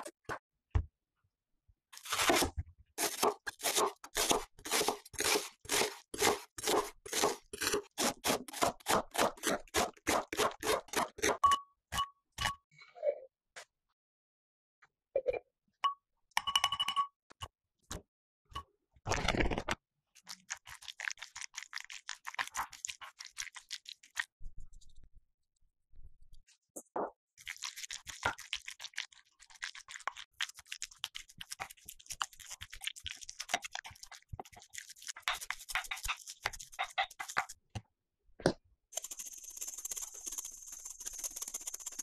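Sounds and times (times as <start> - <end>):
spoon scraping glass bowl: 32.3 - 37.5
pepper grinder grinding: 39.0 - 42.0.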